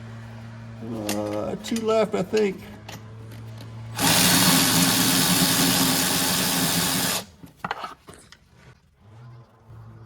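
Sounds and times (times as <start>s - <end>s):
power ratchet spinning: 4.0s - 7.3s.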